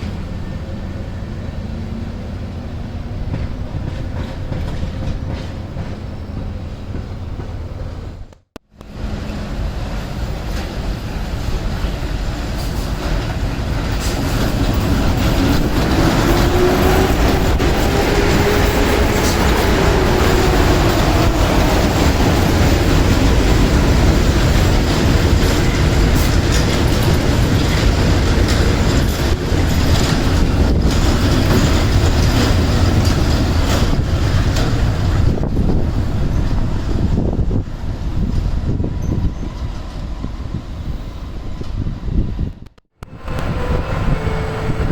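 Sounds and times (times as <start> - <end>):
train wheels clattering over rail joints: 3.3 - 8.0, 10.1 - 37.2.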